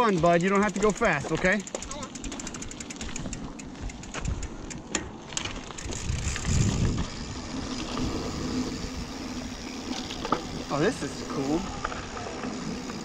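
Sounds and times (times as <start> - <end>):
rattling clicks over bumps: 0.0 - 7.2
bike tyres on dirt: 0.0 - 13.0.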